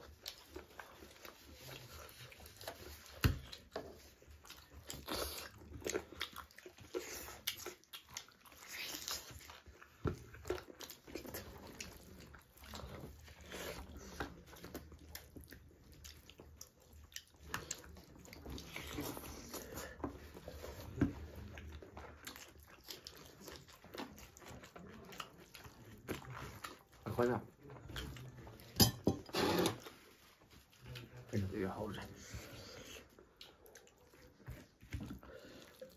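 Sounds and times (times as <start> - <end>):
chewing and mouth smacking: 0.0 - 35.9.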